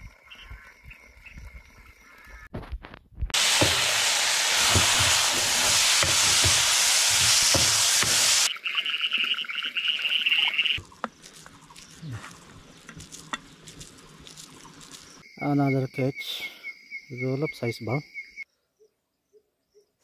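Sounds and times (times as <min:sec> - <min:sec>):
utensil knocking against pan: 0:03.4 - 0:04.0, 0:04.6 - 0:08.5
food sizzling in a wok: 0:03.4 - 0:08.5.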